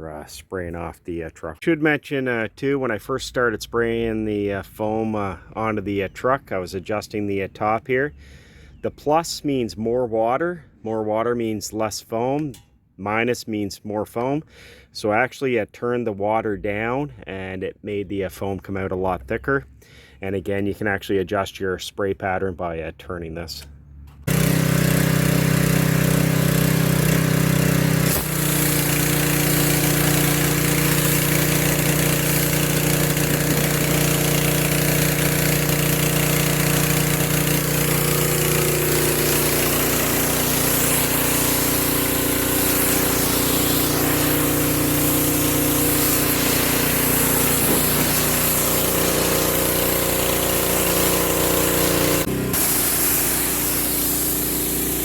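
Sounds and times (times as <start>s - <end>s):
pressure washer engine running: 24.2s - 55.0s
water jet spraying: 24.3s - 55.0s.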